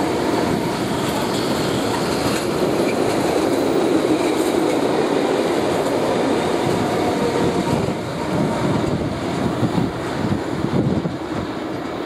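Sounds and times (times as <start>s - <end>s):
tank wagons rolling on rail: 0.0s - 4.8s.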